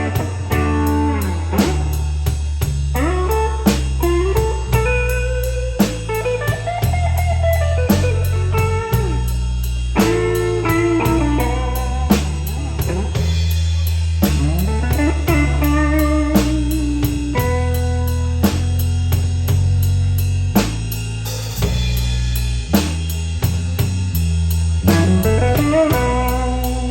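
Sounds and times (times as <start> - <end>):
lead guitar with bent notes: 0.0 - 19.4, 24.8 - 26.9
bass line: 0.0 - 26.9
drum kit: 0.0 - 26.9.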